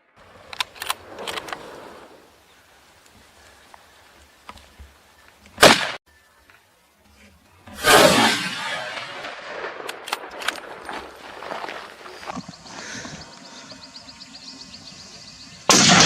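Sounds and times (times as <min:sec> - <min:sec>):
scattered clicks: 0:00.5 - 0:01.6, 0:09.8 - 0:10.8
gunshots echoing: 0:05.6 - 0:06.0, 0:07.8 - 0:11.1, 0:15.7 - 0:16.0.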